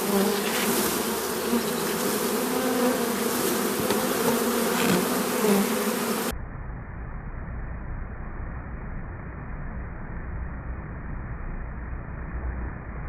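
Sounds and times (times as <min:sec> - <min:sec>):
honeybees buzzing: 0:00.0 - 0:06.3
dull low rumble: 0:06.3 - 0:13.0.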